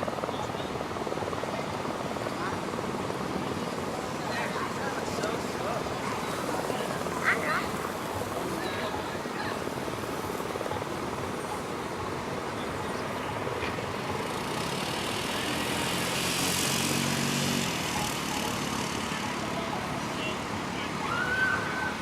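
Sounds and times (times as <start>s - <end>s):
outdoor background noise: 0.0s - 22.0s
vehicle engine passing by: 14.2s - 22.0s.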